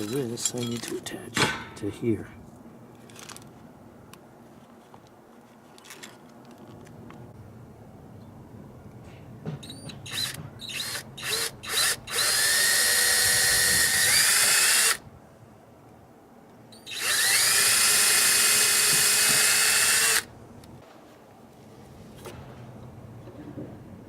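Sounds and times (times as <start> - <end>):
power drill whining: 10.1 - 15.0, 16.8 - 20.3.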